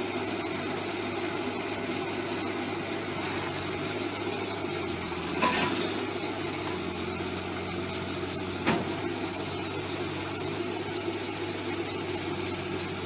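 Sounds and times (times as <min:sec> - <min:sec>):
excavator diesel engine running: 0:00.0 - 0:13.0
sharp metal clanks: 0:05.3 - 0:06.1.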